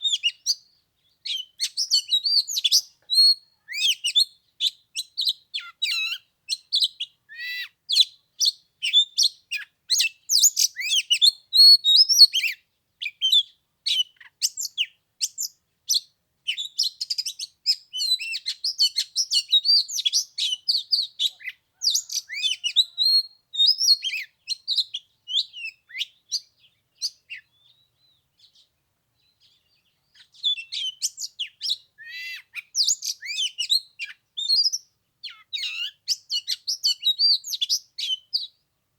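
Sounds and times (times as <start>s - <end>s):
bird singing whistles and chirps: 0.0s - 38.6s.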